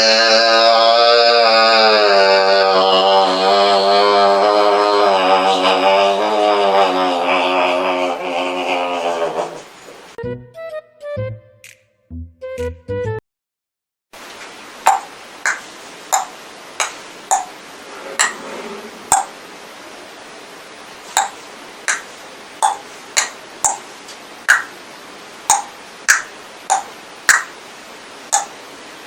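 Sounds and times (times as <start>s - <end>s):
steady hiss: 14.2s - 29.0s
mouth-made pings: 16.2s - 17.6s, 19.1s - 19.4s, 21.2s - 22.0s, 22.6s - 23.8s, 25.5s - 27.5s, 28.4s - 28.6s.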